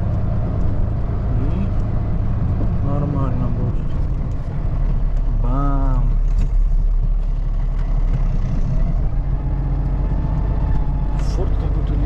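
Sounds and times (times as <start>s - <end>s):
truck engine low drone: 0.0s - 12.0s.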